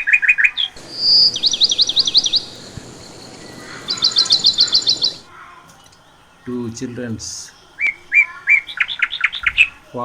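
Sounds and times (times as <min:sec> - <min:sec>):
budgerigars chirping: 0:00.8 - 0:05.3.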